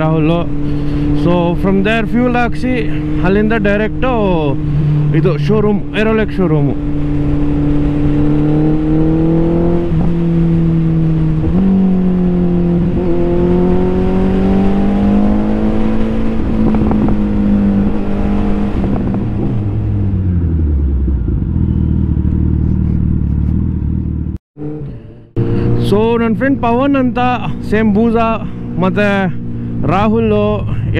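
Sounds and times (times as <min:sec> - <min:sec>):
motorcycle engine: 0:00.0 - 0:30.9.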